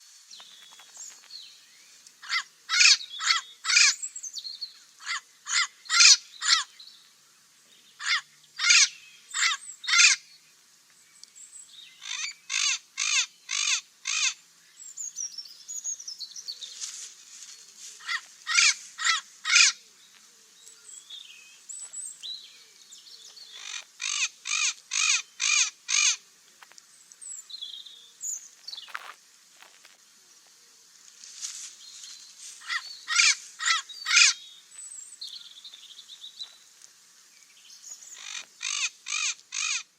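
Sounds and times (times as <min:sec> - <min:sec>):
parrot chattering calls: 0:08.0 - 0:10.2, 0:12.0 - 0:14.4, 0:18.0 - 0:19.8, 0:23.6 - 0:26.2, 0:32.6 - 0:34.4, 0:38.2 - 0:39.9
parrot squawking: 0:08.0 - 0:10.2, 0:18.0 - 0:19.8, 0:23.6 - 0:26.2, 0:32.6 - 0:34.4, 0:38.2 - 0:39.8.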